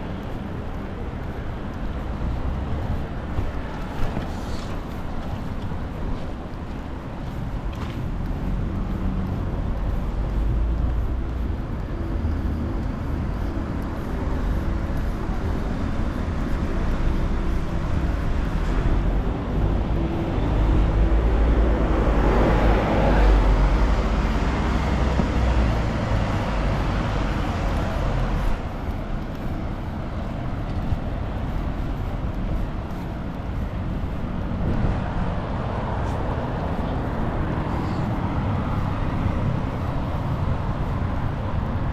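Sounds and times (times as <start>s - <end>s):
road traffic: 0.0s - 41.9s.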